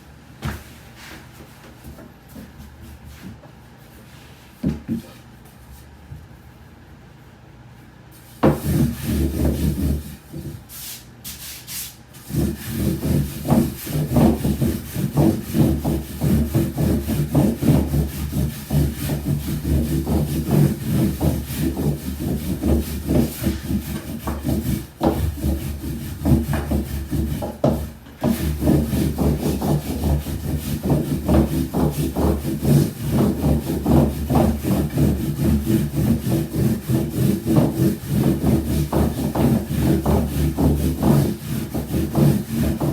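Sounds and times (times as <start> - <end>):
rolling pin rolling dough on board: 8.3 - 10.8, 12.2 - 42.9.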